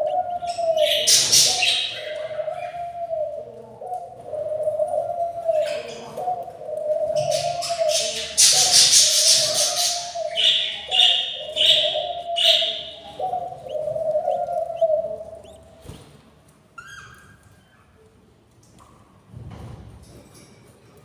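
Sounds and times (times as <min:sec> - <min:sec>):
bird chicks begging calls: 0:00.0 - 0:16.1.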